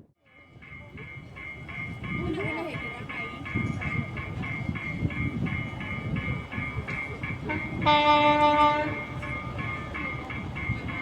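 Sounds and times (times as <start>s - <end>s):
train rumbling past: 0.2s - 11.0s
train horn blast: 7.5s - 9.1s.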